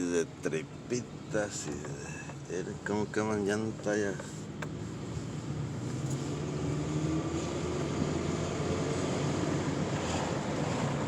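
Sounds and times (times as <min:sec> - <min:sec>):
road noise: 0:00.0 - 0:11.0
car engine accelerating: 0:04.6 - 0:11.0.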